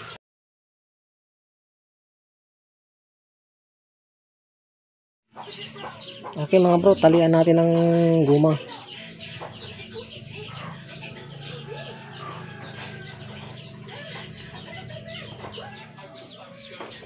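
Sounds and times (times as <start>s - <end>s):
birds calling: 5.3s - 17.0s.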